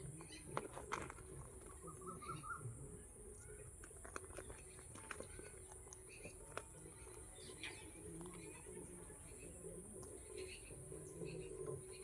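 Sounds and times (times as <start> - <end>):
soft bird chirp: 0.0 - 12.0
parakeet clicks and scratches: 0.1 - 2.1, 3.6 - 8.6.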